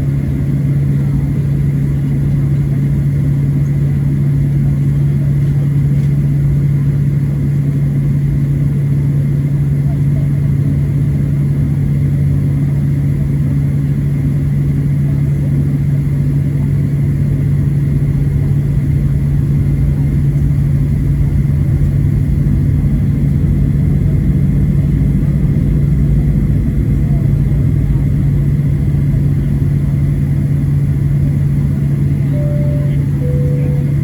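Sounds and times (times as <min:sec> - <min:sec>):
airplane cabin drone: 0:00.0 - 0:34.0
low rumble: 0:17.2 - 0:34.0.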